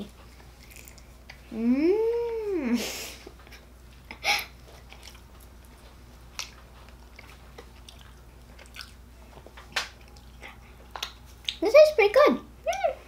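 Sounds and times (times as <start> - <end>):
faint chewing candy: 0.0 - 1.6, 3.3 - 11.6.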